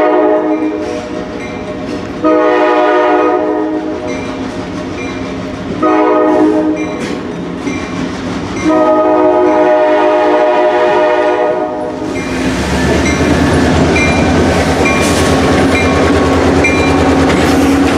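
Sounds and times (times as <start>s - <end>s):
locomotive horn blast: 0.0s - 0.8s, 2.2s - 4.0s, 5.8s - 6.9s, 8.6s - 12.1s
train wheel noise: 0.0s - 17.9s
crossing bell dinging: 0.4s - 2.0s, 6.6s - 9.9s, 12.1s - 17.2s
locomotive engine rumble: 0.4s - 17.9s.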